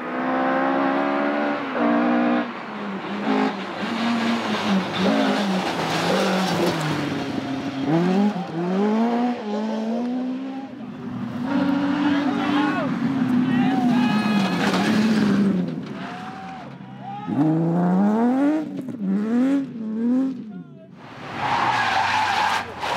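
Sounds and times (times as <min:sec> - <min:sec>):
rally car engine revving: 0:00.0 - 0:16.2, 0:17.3 - 0:20.5.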